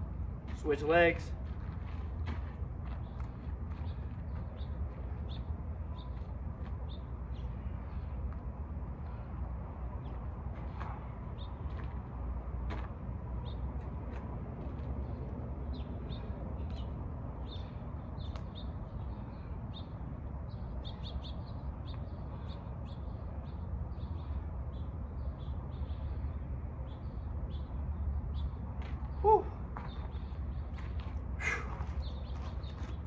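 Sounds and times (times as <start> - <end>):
steady low rumble: 0.0 - 20.7
small birds chirping: 15.0 - 33.0.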